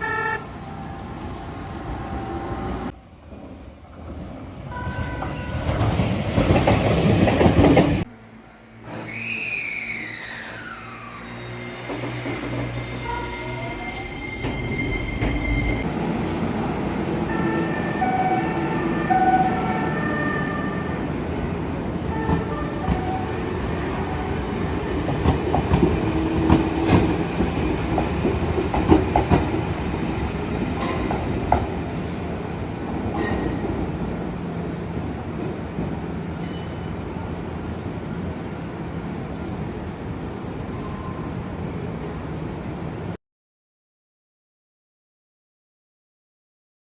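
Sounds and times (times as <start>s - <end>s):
electric train rumbling: 0.3s - 43.2s.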